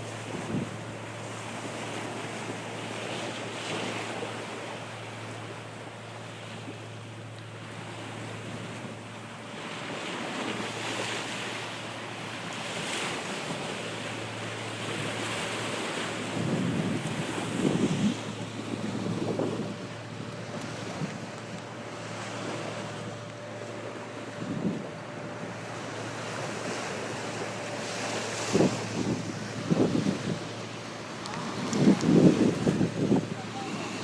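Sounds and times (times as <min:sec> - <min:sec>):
sea water rushing: 0:00.0 - 0:34.0
steady low hum: 0:00.0 - 0:34.0
wind buffeting microphone: 0:16.1 - 0:21.8, 0:22.4 - 0:34.0.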